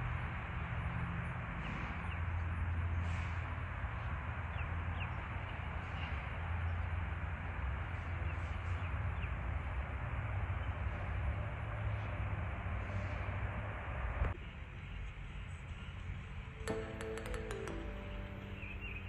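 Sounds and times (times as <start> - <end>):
outdoor rumble and hiss: 0.0 - 16.7
high bird chirps: 16.7 - 19.0.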